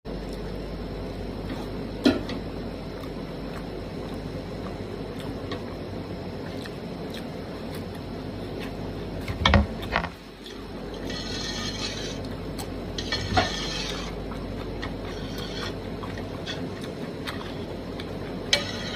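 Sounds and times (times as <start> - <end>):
faint eating clicks: 2.8 - 10.7, 14.2 - 18.6.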